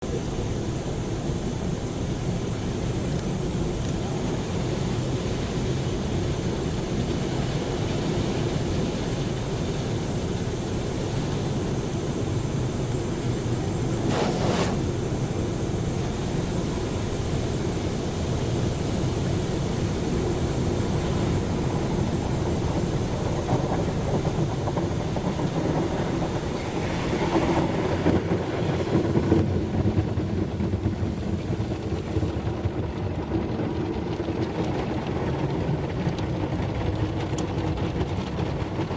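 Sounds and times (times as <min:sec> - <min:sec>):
automatic car wash running: 0:00.0 - 0:38.9
thumps and swishes: 0:14.1 - 0:14.9.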